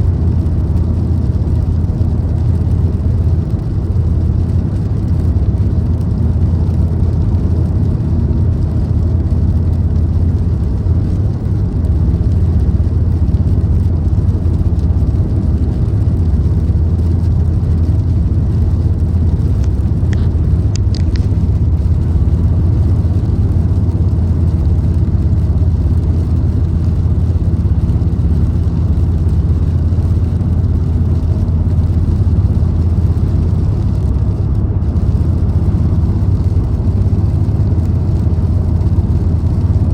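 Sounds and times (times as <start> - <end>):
car engine and tyre rumble: 0.0 - 39.9
faint clicks: 18.8 - 22.2.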